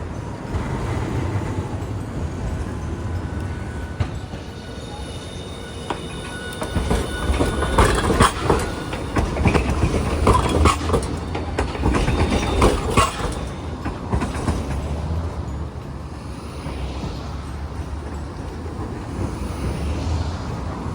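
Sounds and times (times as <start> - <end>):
streetcar low rumble: 0.0 - 20.9
streetcar wheels clattering on track: 0.0 - 20.9.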